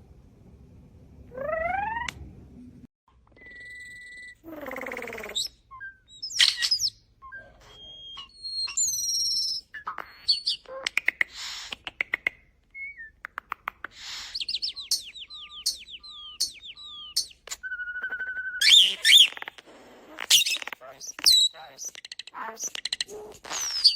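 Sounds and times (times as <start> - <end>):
starling singing: 3.9 - 11.7, 13.9 - 23.9.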